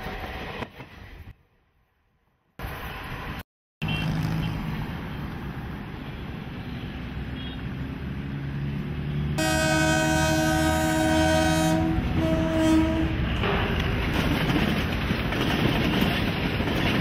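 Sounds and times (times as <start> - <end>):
train rumbling on rails: 0.0 - 1.4, 8.0 - 17.0
train horn: 9.4 - 13.4.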